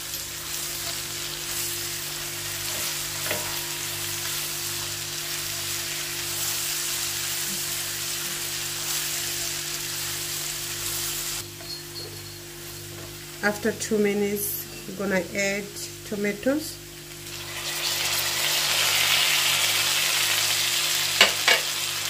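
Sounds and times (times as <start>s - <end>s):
onion sizzling in hot oil: 0.0s - 15.2s, 16.8s - 22.0s
spatula stirring in a pot: 0.8s - 10.2s.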